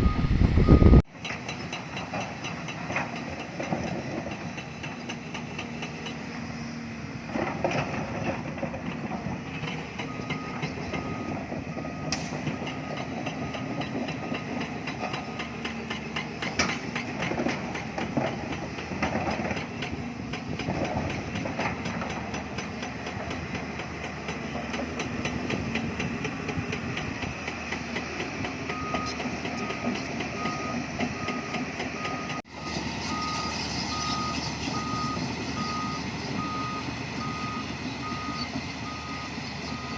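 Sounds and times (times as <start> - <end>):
reversing alarm beeping: 0.0 - 1.0, 10.0 - 15.7, 28.7 - 39.9
excavator diesel engine running: 0.0 - 39.9.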